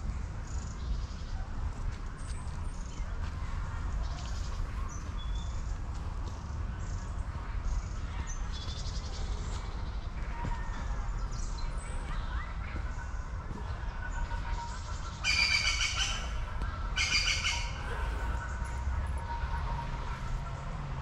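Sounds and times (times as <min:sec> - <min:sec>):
songbirds singing: 0:02.1 - 0:21.0
steady low rumble: 0:16.0 - 0:21.0.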